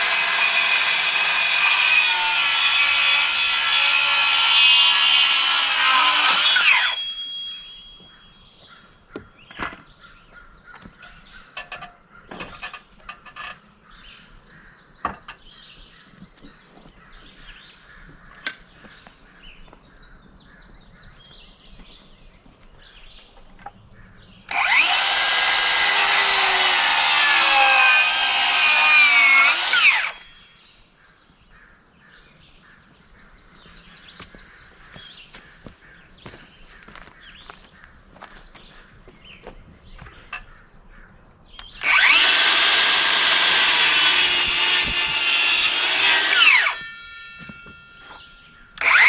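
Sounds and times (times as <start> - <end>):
handheld power tool running: 0.0 - 7.0, 24.5 - 30.4, 41.8 - 46.9, 48.8 - 49.0.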